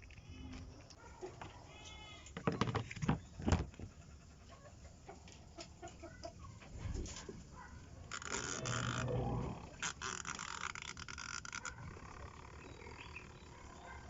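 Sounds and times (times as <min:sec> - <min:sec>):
chickens clucking: 0:03.2 - 0:07.6.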